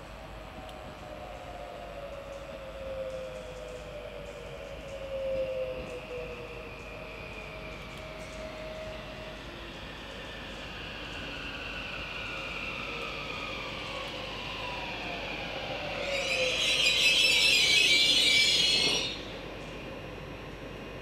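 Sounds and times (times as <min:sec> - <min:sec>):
train brake squeal and hiss: 0:04.9 - 0:14.0, 0:14.8 - 0:19.5
train motor whine: 0:11.9 - 0:20.1.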